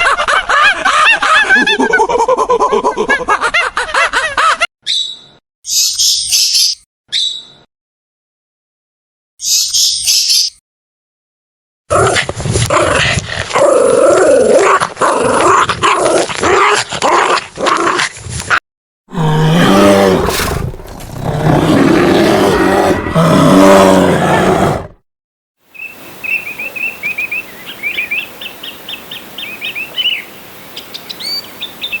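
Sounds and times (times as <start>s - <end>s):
animal calls: 19.1s - 25.0s
low drawn-out cries: 19.1s - 25.0s.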